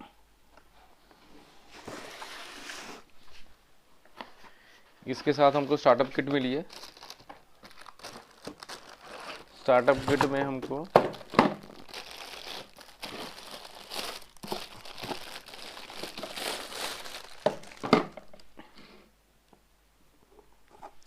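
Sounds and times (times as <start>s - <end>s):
packaging crinkling: 6.2s - 18.5s.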